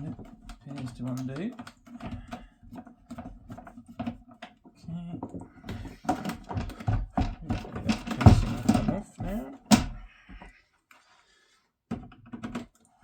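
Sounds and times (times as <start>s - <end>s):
screwdriver clicking on plastic casing: 0.0s - 4.5s.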